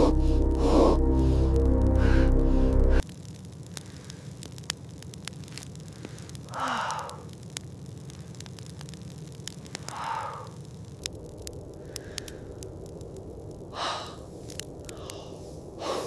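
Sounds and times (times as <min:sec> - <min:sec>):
person breathing heavily: 0:00.0 - 0:03.0, 0:05.9 - 0:07.4, 0:09.7 - 0:10.6, 0:11.8 - 0:12.6, 0:13.7 - 0:16.0
steady low rumble: 0:00.0 - 0:03.0.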